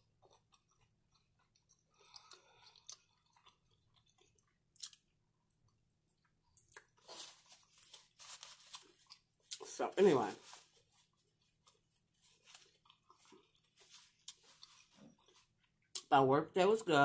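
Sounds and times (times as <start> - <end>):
chewing mouth sounds: 0.2 - 5.0.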